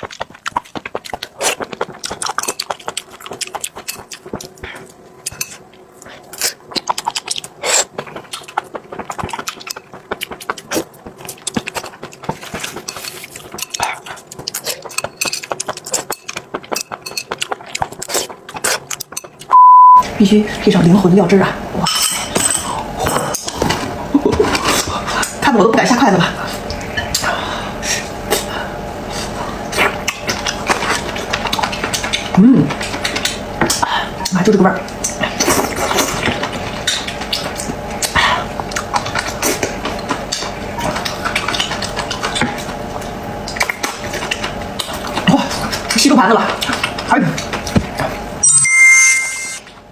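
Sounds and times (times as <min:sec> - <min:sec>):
wet chewing and smacking: 0:00.0 - 0:19.6, 0:22.8 - 0:48.4
utensils clinking against dishes: 0:14.6 - 0:17.8, 0:21.8 - 0:25.4
high-pitched beep tone: 0:19.5 - 0:20.0, 0:48.4 - 0:49.6.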